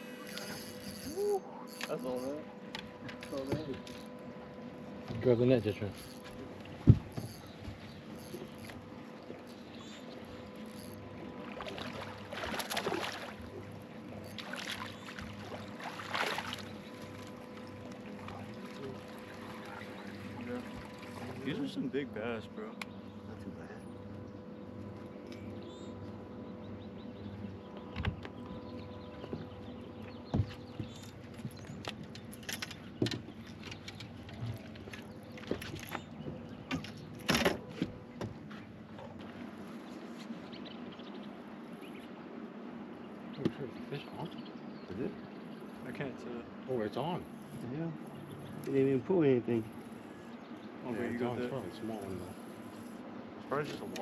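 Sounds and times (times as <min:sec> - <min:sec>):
faint steady hum: 0:00.0 - 0:54.0
water splashing and trickling: 0:08.5 - 0:21.8
loud splashes: 0:15.8 - 0:16.6.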